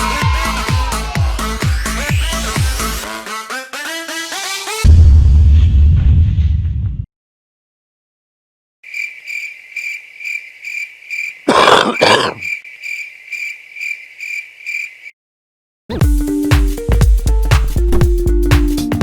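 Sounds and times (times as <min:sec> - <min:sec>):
crickets chirping: 0:08.8 - 0:15.1.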